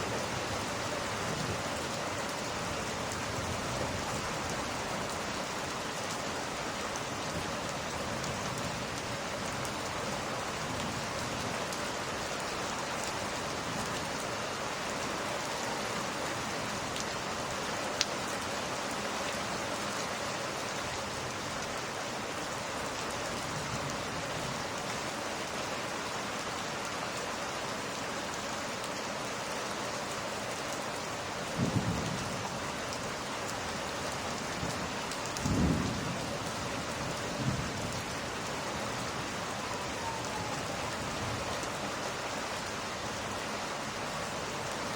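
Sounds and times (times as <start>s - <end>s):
steady rain falling: 0.0s - 44.9s
low rumble of thunder: 31.5s - 32.5s, 34.5s - 38.1s.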